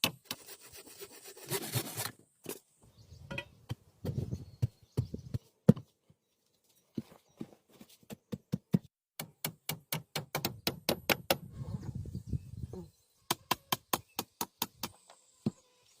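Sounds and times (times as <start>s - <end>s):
sharp knocks and thuds: 3.3s - 5.9s, 8.0s - 11.4s.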